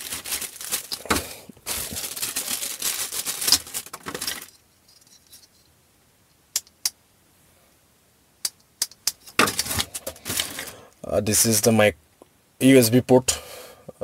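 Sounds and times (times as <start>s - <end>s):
plastic packaging crinkling: 0.0s - 4.6s, 9.4s - 10.8s.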